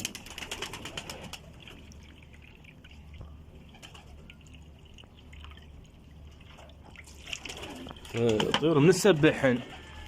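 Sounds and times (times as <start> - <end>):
pigeons splashing in water: 0.0 - 9.9
water dripping: 1.3 - 8.7.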